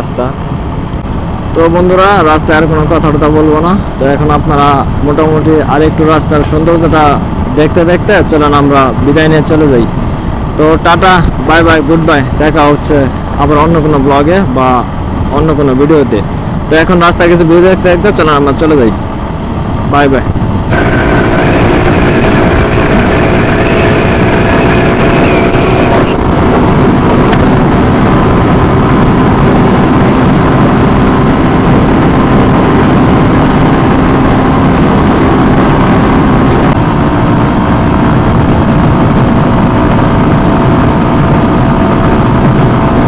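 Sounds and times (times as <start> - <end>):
wind buffeting on microphone: 0.0 - 43.0
motorcycle engine running: 20.4 - 43.0.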